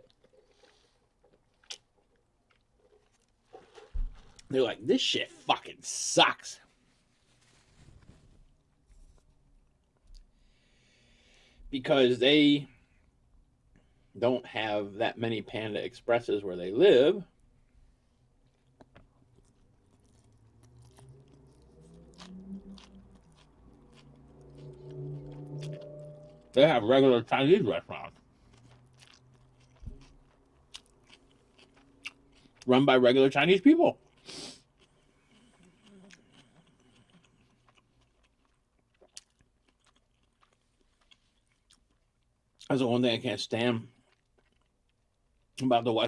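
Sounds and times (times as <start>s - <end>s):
man chewing food: 0.0s - 4.5s, 6.8s - 11.6s, 17.3s - 26.5s, 27.2s - 32.7s, 34.0s - 42.7s, 44.0s - 45.6s
low hum: 19.4s - 27.3s.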